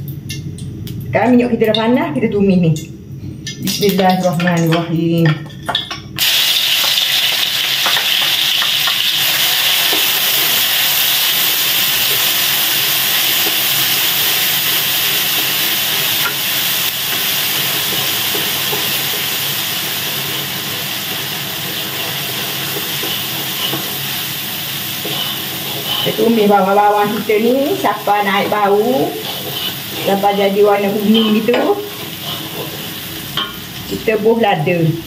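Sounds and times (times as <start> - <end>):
paste sizzling in hot oil: 6.2 - 34.0
wooden spatula scraping wok: 20.1 - 34.0.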